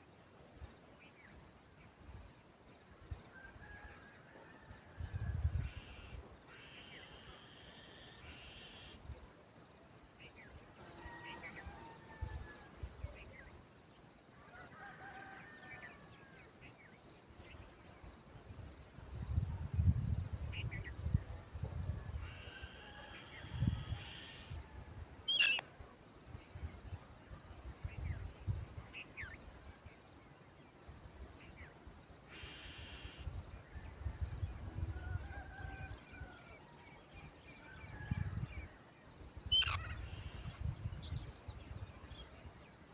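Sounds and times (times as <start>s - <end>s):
bird chirps: 25.3s - 25.6s.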